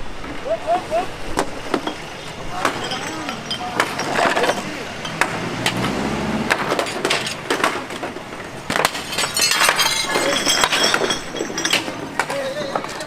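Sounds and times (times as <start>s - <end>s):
low engine hum: 0.0s - 8.7s
glass smashing: 1.7s - 5.4s, 8.7s - 13.0s.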